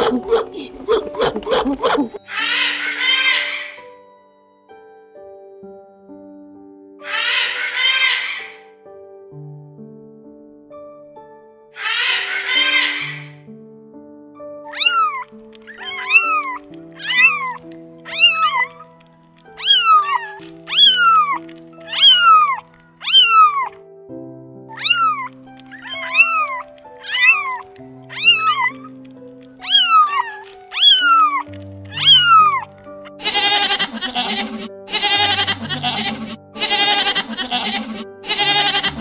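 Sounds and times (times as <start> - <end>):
background music: 0.0 - 39.0
kittens meowing: 11.8 - 13.3, 14.7 - 23.8, 24.7 - 29.0, 29.6 - 39.0
goat bleating: 33.2 - 39.0.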